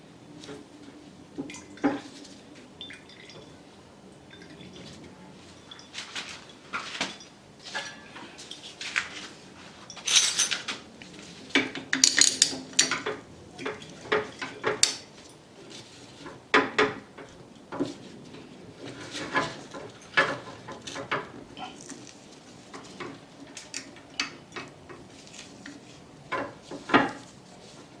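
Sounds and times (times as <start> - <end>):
metal parts and tools clinking: 9.9 - 10.8, 11.9 - 13.2.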